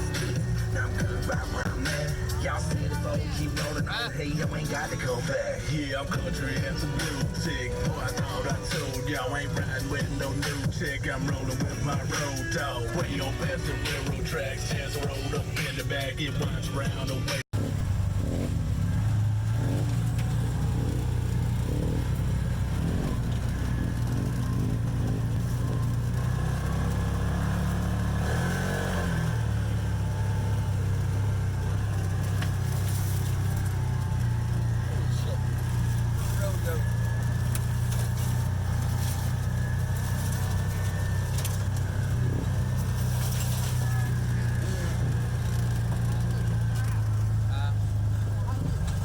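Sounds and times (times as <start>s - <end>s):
vehicle engine running steadily: 0.0s - 49.0s.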